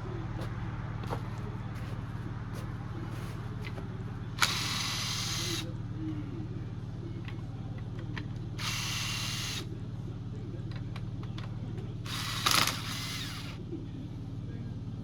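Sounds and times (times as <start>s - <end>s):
steady low hum: 0.0s - 15.0s
impact wrench click: 4.4s - 5.6s
impact wrench motor whine: 4.4s - 5.7s, 8.6s - 9.7s, 12.1s - 13.6s.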